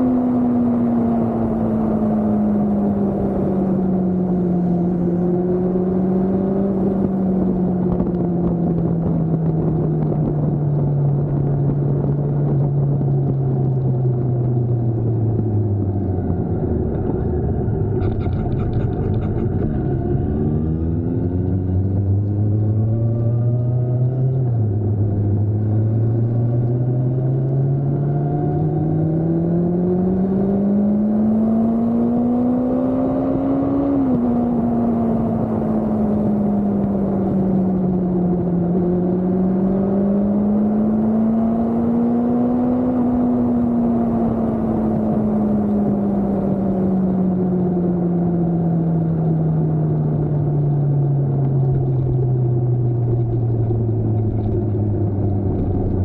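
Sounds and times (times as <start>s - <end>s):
motorcycle engine revving: 14.9s - 56.0s.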